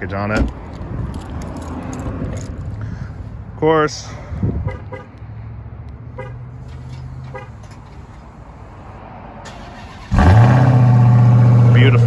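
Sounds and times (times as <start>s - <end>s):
car engine starting and running: 5.2s - 12.0s.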